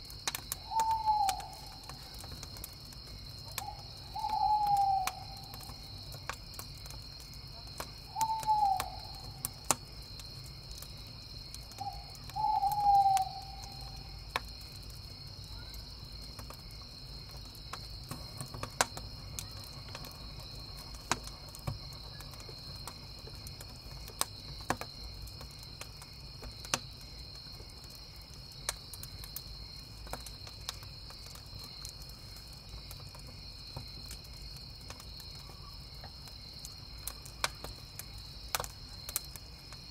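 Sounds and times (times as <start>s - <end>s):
crickets chirping: 0.0s - 39.9s
wood fire crackling and popping: 0.0s - 39.9s
owl hooting: 0.6s - 1.8s, 3.6s - 5.5s, 8.1s - 9.4s, 11.8s - 14.1s.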